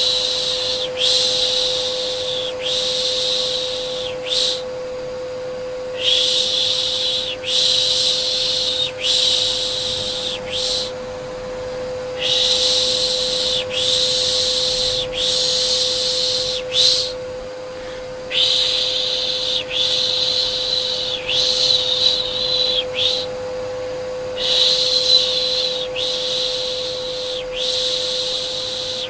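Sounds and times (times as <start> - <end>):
vacuum cleaner motor hum: 0.0 - 29.0
person shushing: 6.0 - 11.0, 17.8 - 23.3, 24.3 - 29.0.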